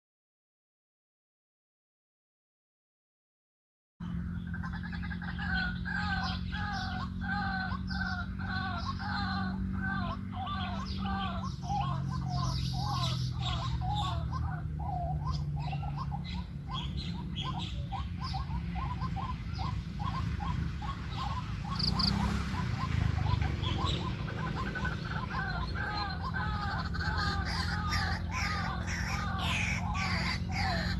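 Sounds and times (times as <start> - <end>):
bird croaking calls: 4.0 - 30.9.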